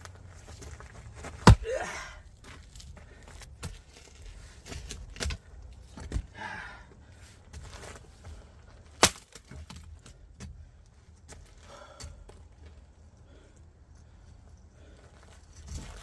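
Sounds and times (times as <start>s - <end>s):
axe striking firewood: 1.2s - 2.1s, 9.0s - 9.9s
wood cracking apart: 8.8s - 10.2s.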